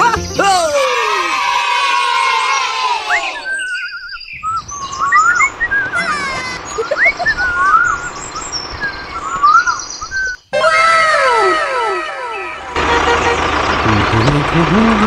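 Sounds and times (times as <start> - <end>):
musical phrase: 0.0 - 1.4, 11.8 - 15.0
birds chirping and calling: 1.9 - 10.5, 11.4 - 15.0
steady outdoor hiss: 4.3 - 10.5.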